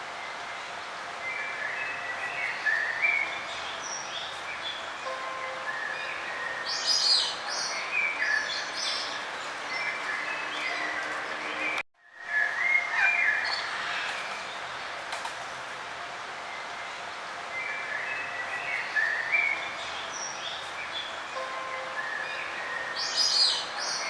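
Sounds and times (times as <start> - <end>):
outdoor ambience hiss: 0.0 - 24.0
small songbirds chirping: 1.2 - 11.8, 17.5 - 24.0.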